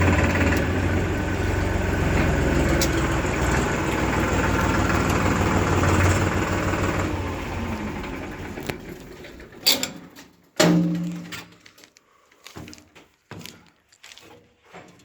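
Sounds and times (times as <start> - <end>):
diesel engine running: 0.0 - 10.2
sharp metallic knocks: 9.7 - 11.4.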